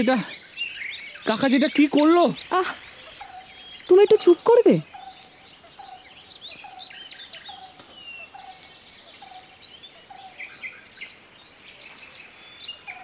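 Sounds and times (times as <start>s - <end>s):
birds chirping and trilling: 0.0s - 13.0s.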